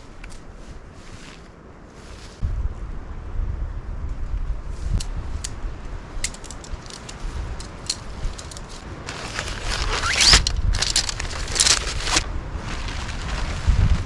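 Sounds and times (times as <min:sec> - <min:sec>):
wind buffeting microphone: 0:02.4 - 0:14.0
camping gear clicking and rattling: 0:06.2 - 0:13.6
gear rustling: 0:06.2 - 0:13.8.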